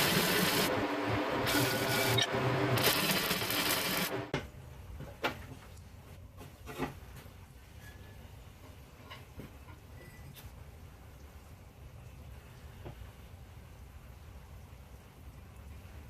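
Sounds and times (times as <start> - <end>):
power tool motor hum: 0.0 - 4.3
grinding against metal: 1.4 - 4.2.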